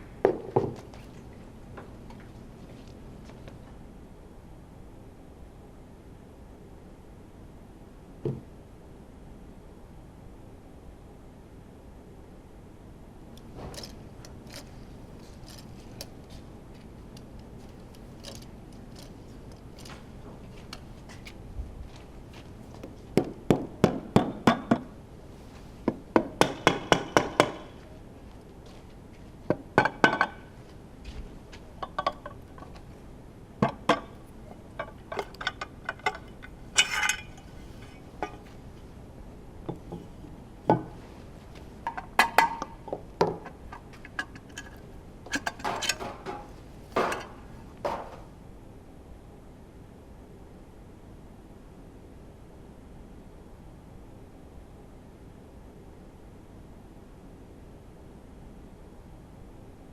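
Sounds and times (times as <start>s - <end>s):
metal tools clinking: 13.8s - 16.4s, 17.2s - 20.1s, 33.8s - 38.9s, 43.5s - 48.2s.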